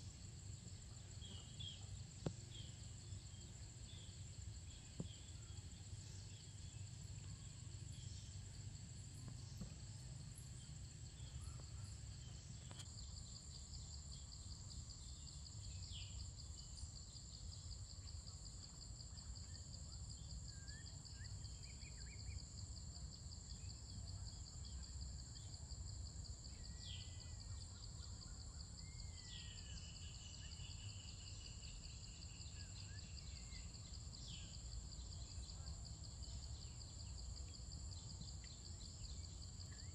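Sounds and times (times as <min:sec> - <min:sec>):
insects trilling: 0:26.4 - 0:39.9.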